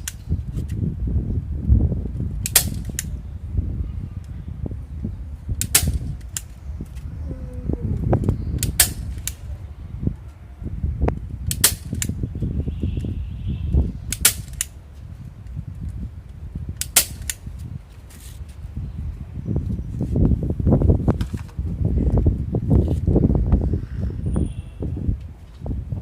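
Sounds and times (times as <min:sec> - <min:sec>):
low rumble: 0:00.4 - 0:11.5
sharp snapping clicks: 0:02.4 - 0:03.1, 0:05.6 - 0:06.5, 0:08.2 - 0:09.4, 0:14.1 - 0:14.8, 0:16.8 - 0:17.4.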